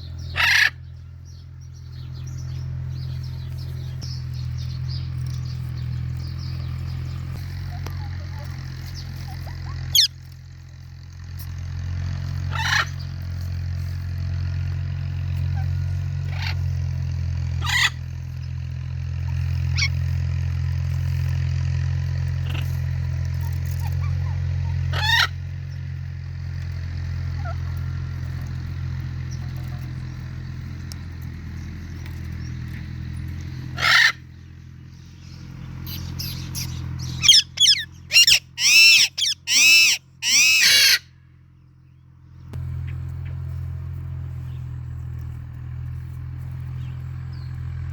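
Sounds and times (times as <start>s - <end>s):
parrots squawking: 0.0s - 0.9s, 7.7s - 10.2s, 12.5s - 13.1s, 16.3s - 16.6s, 17.6s - 18.0s, 23.6s - 25.4s, 27.4s - 27.6s, 33.6s - 34.3s, 35.8s - 41.1s
steady low hum: 0.0s - 40.2s, 41.0s - 47.9s.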